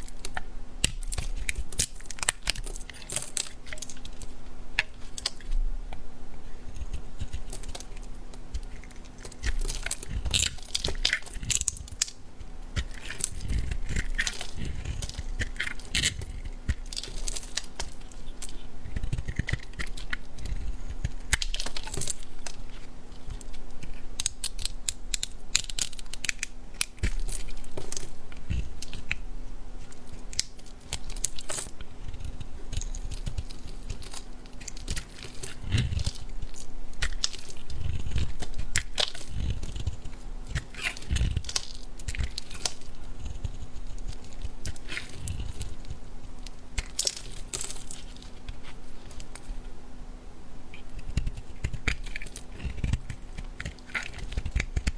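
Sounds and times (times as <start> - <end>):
bar soap crackling and crunching: 0.0 - 54.9.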